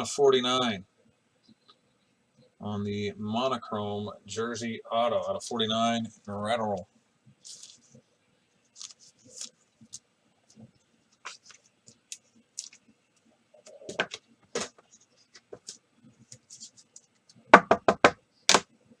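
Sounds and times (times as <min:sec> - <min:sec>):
cards and plastic holders rustling: 0:07.3 - 0:08.0, 0:08.7 - 0:17.7.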